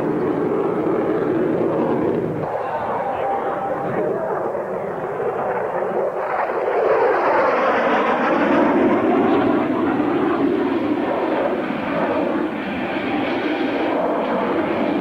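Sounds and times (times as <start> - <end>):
aircraft flying past: 0.0 - 15.0.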